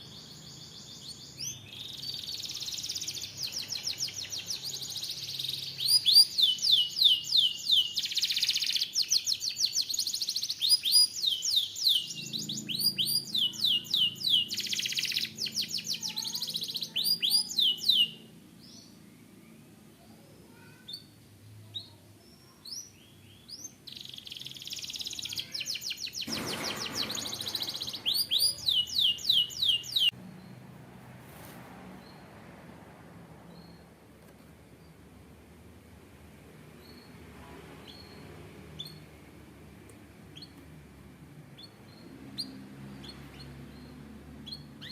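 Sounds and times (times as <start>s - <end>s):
canary singing trills: 0.0s - 19.0s, 20.5s - 30.6s, 37.8s - 39.2s, 41.5s - 44.9s.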